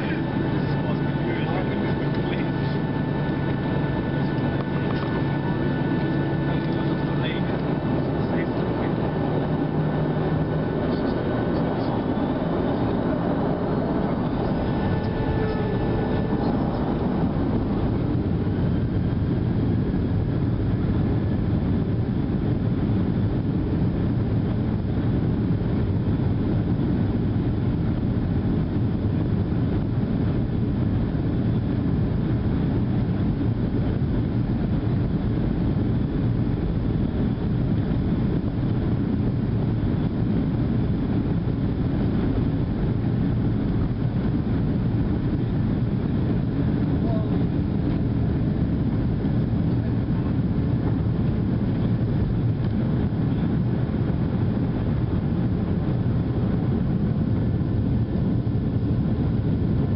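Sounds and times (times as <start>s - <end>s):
thin whine: 0.0s - 23.9s
jet engines at take-off thrust: 0.0s - 59.9s.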